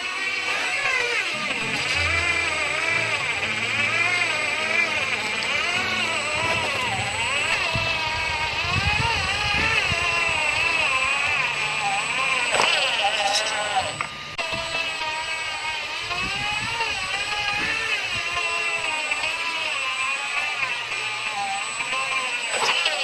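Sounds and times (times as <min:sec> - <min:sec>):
truck engine running: 0:01.3 - 0:15.6.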